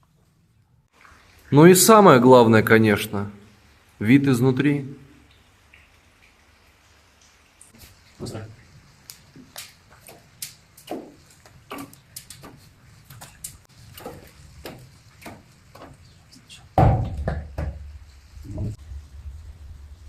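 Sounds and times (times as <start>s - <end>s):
loud thump: 16.8s - 17.9s.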